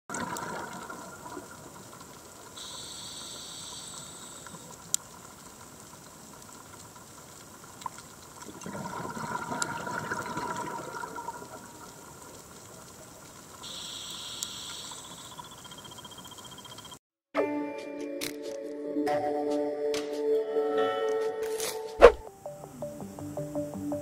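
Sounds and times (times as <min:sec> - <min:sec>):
rush of exhaled bubbles: 0:00.1 - 0:01.7, 0:08.5 - 0:12.1
regulator breathing hiss: 0:02.5 - 0:04.8, 0:13.6 - 0:15.5.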